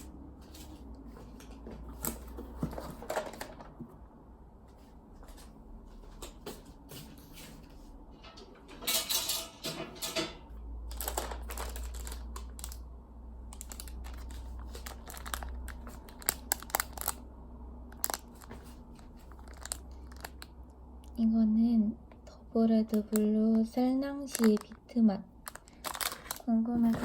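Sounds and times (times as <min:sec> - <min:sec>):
packaging tearing and crinkling: 0:10.9 - 0:12.8, 0:13.5 - 0:17.2, 0:17.9 - 0:20.5, 0:24.2 - 0:24.8, 0:25.4 - 0:26.5.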